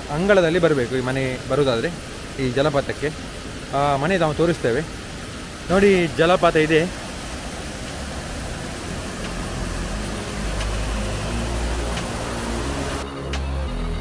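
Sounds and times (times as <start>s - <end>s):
steady rushing noise: 0.0s - 13.5s
background music bassline: 8.4s - 14.0s.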